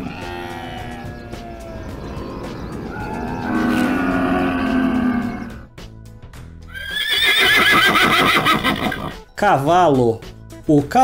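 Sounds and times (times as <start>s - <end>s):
camel calling: 0.0s - 5.7s, 6.7s - 9.2s
horse whinnying: 0.0s - 5.7s, 6.7s - 9.2s.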